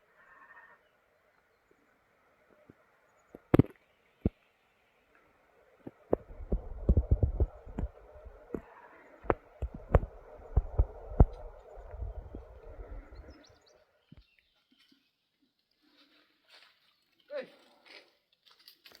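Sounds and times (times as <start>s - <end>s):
low thumps: 5.9s - 13.3s.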